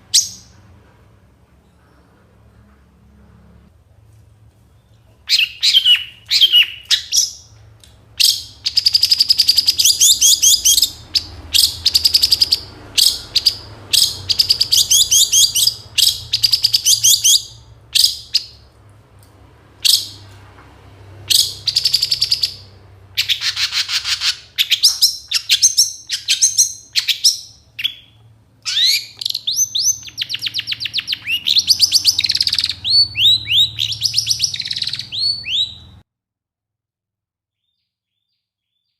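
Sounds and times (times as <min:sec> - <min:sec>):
shrike singing trilled song: 0:08.2 - 0:18.6, 0:21.4 - 0:36.0.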